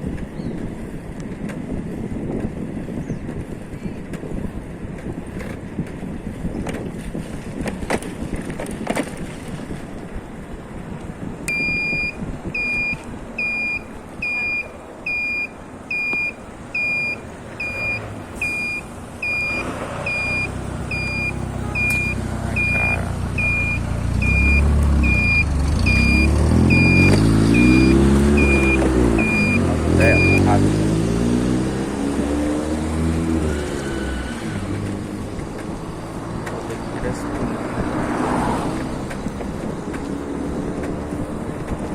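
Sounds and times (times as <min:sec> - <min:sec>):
road noise rumbling: 0:00.0 - 0:41.9
electronic warning beep: 0:11.5 - 0:30.6
engine revving: 0:16.8 - 0:41.9.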